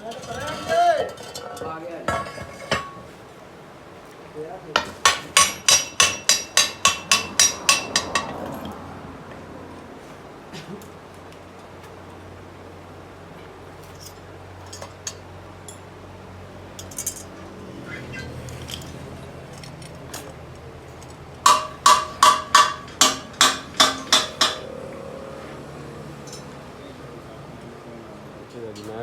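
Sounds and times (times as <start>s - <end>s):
hammer striking metal: 4.8s - 8.7s, 21.4s - 24.8s
light metallic taps and clinks: 4.8s - 8.8s.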